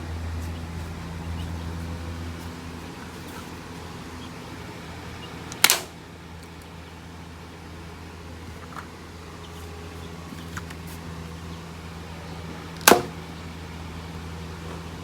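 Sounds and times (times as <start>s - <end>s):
steady low hum: 0.0s - 15.0s
toy gun shot: 5.5s - 5.9s.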